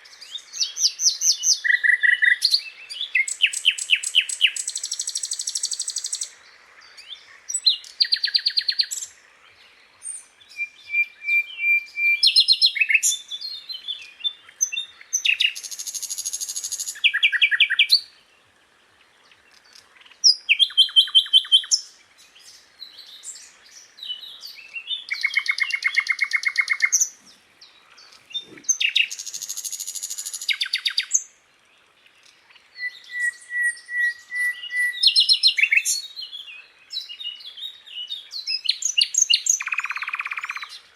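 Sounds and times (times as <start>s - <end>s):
bird chirping trills: 0.0s - 9.2s, 19.1s - 31.3s
bird whistles: 10.5s - 13.2s, 32.8s - 36.0s.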